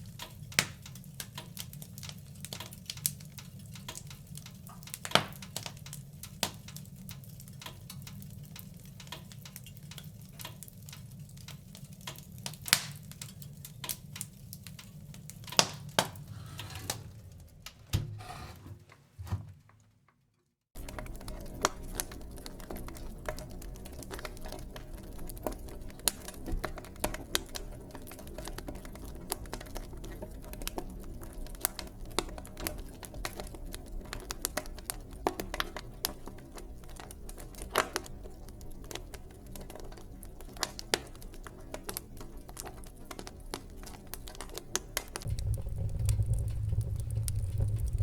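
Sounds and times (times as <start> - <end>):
wood fire crackling: 0.0 - 17.9, 20.8 - 48.0
low steady rumble: 45.2 - 48.0.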